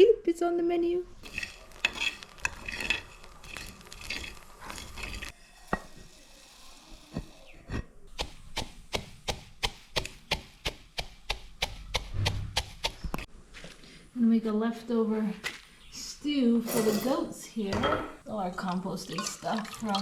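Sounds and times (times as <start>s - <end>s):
stirring and scraping: 1.1s - 13.3s
knife chopping on wooden board: 8.2s - 13.2s.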